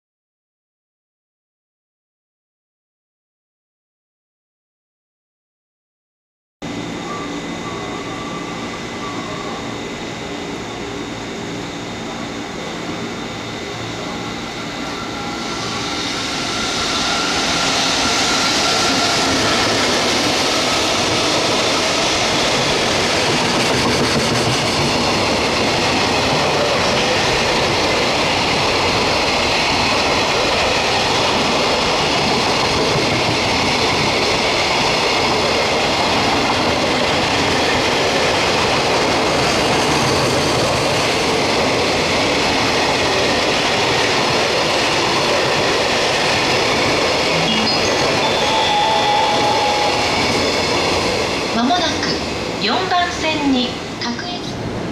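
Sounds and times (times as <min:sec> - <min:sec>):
train rolling past: 0:06.7 - 0:54.9
locomotive whining: 0:46.4 - 0:52.5.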